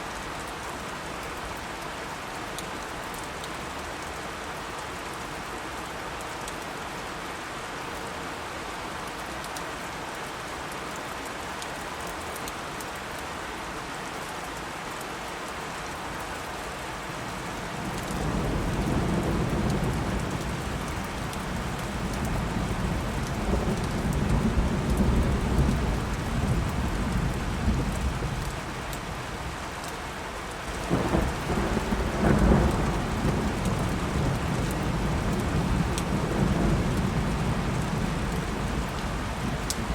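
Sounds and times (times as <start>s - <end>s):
steady rain falling: 0.0s - 39.9s
thunder rumbling: 17.7s - 28.4s, 30.7s - 39.9s.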